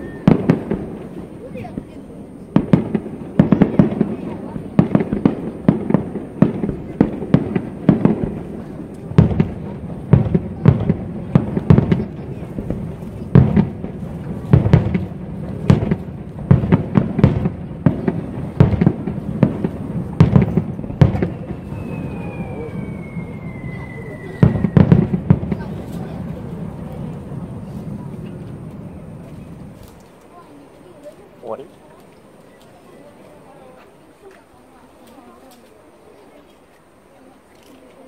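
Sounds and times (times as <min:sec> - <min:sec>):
high falling whistle: 0:00.0 - 0:00.5, 0:21.4 - 0:24.9
fireworks bangs and crackles: 0:00.0 - 0:38.0.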